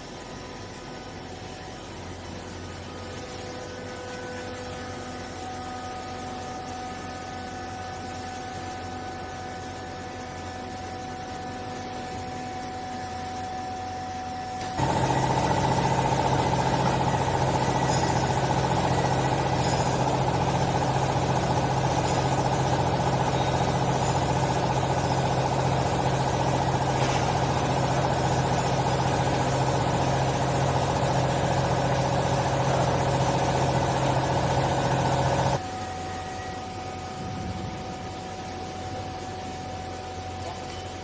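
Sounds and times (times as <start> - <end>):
hydraulic pump motor humming: 14.6 - 35.6.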